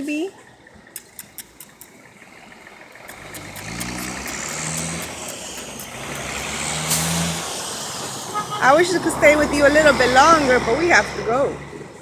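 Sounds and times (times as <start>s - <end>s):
vehicle engine approaching: 0.0s - 12.0s
faint quick clicks: 0.9s - 2.0s.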